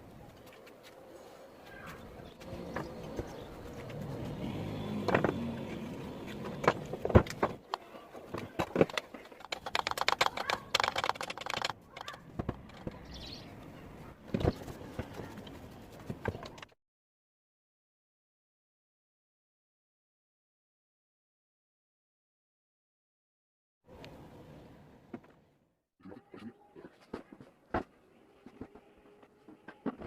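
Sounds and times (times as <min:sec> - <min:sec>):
metal tools clicking and knocking: 0:08.4 - 0:13.0
rapid ticking: 0:09.4 - 0:12.8.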